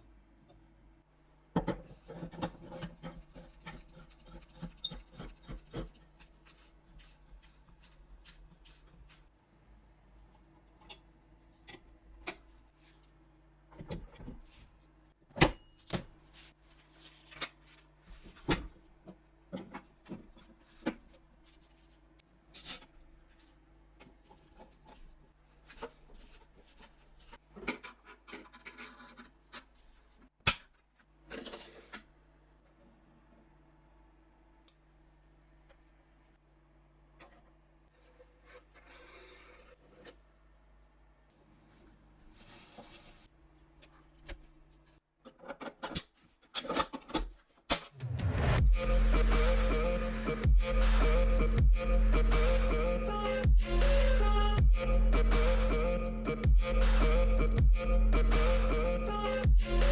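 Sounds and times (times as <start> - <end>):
soft rubbing of hands: 3.3 - 9.4.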